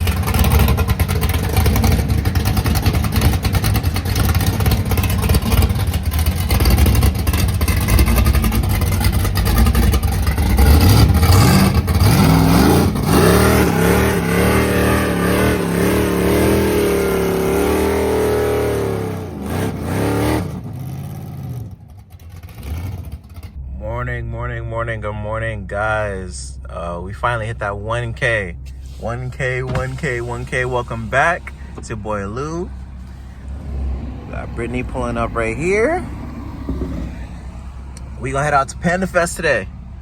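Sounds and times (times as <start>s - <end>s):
car engine revving loudly: 0.0s - 23.6s, 25.5s - 40.0s
exhaust crackling: 0.0s - 40.0s.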